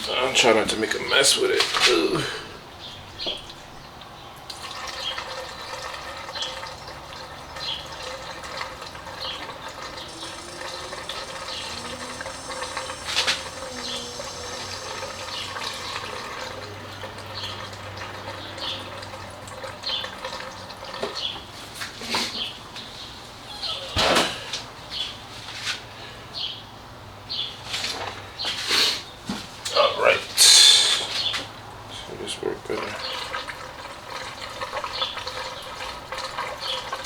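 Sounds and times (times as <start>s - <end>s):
fuel pouring into a tank: 0.0s - 22.5s, 31.6s - 37.0s.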